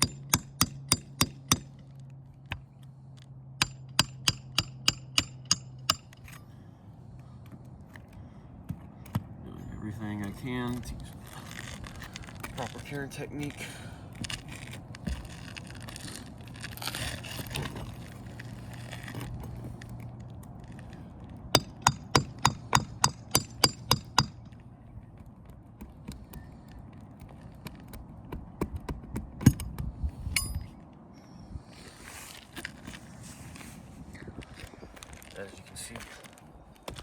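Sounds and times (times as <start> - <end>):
metallic hammer strikes: 3.6 - 6.1, 21.6 - 24.4
knocks and scrapes: 10.2 - 23.3, 31.8 - 37.0.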